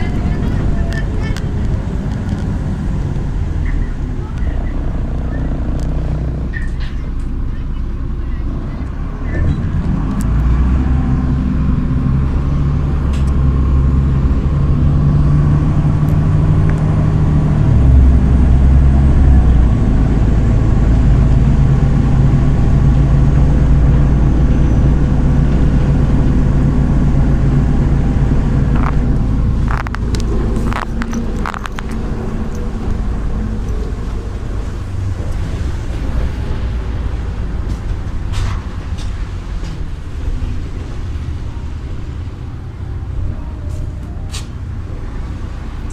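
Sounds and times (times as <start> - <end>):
bus engine humming: 0.0 - 45.9
sharp clicks and rattles: 28.7 - 33.8.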